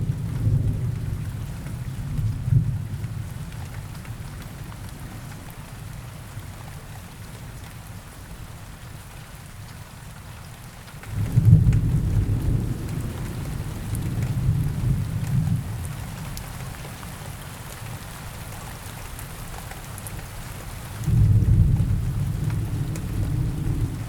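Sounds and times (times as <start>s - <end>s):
rain falling: 0.0s - 24.0s
thunder rumbling: 11.1s - 16.3s, 21.0s - 24.0s.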